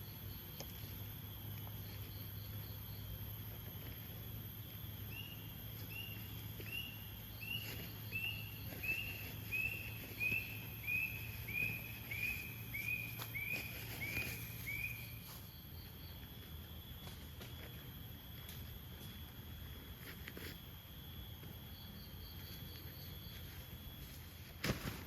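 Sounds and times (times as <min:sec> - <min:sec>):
high insect drone: 0:00.0 - 0:25.0
forest bird calling: 0:05.1 - 0:15.4.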